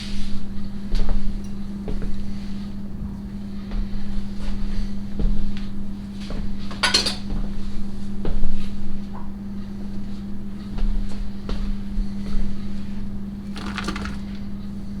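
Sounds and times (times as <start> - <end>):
utensils clinking against a dish: 6.7 - 7.4.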